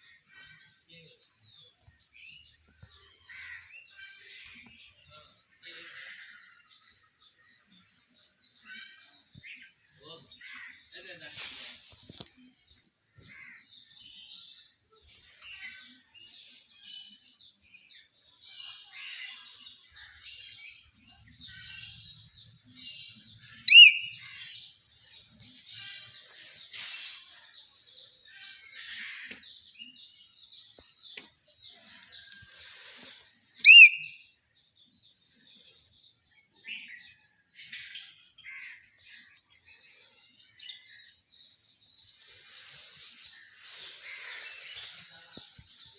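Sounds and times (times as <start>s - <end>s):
birds chirping: 0.0s - 45.9s
loud whistled bird call: 23.6s - 24.2s, 33.6s - 34.3s.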